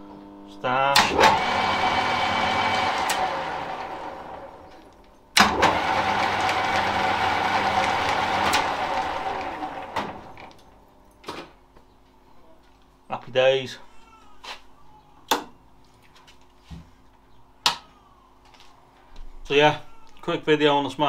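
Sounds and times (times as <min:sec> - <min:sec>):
lathe motor spinning down: 0:01.0 - 0:10.6.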